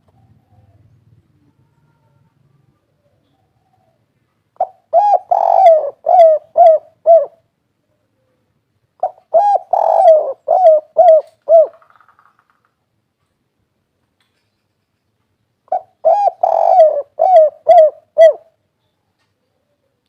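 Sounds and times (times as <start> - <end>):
dove cooing: 0.0 - 7.4, 9.0 - 12.0, 15.7 - 18.6.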